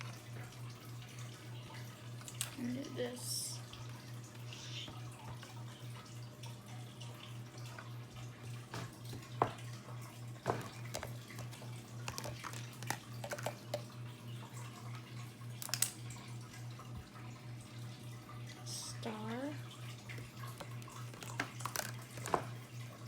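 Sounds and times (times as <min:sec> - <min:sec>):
plastic tools clicking on a table: 0:10.5 - 0:13.8, 0:15.6 - 0:16.0.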